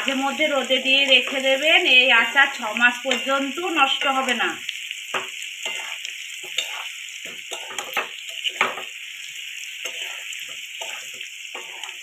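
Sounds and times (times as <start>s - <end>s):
pickle sizzling in hot oil: 0.0s - 12.0s
spoon scraping a pan: 5.1s - 12.0s.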